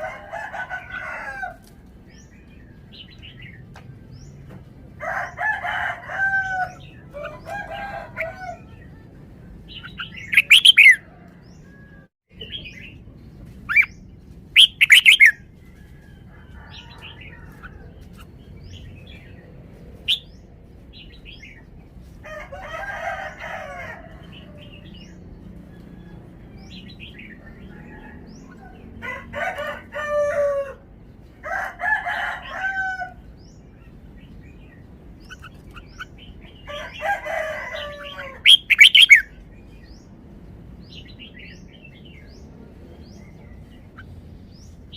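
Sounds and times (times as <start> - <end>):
faint bird calls: 9.8 - 11.3.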